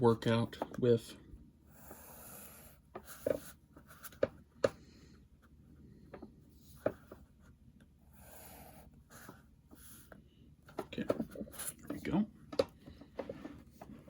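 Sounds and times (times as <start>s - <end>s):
pencil scratching on paper: 1.7s - 4.2s, 6.7s - 10.2s.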